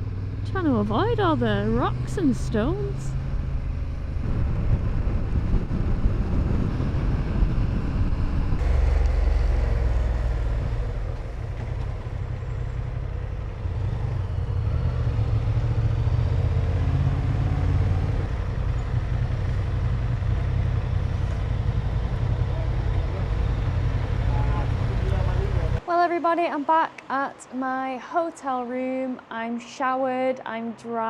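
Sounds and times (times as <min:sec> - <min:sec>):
motorcycle engine rumble: 0:00.0 - 0:25.8
road noise: 0:00.0 - 0:31.0
wind noise: 0:00.9 - 0:15.2.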